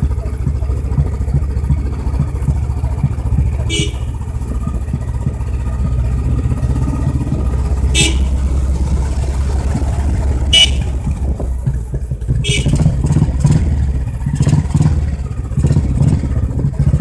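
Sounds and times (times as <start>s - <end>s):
motorcycle engine running: 0.0s - 17.0s
horn toots: 3.6s - 4.2s, 7.8s - 8.6s, 10.4s - 11.2s, 12.4s - 13.1s.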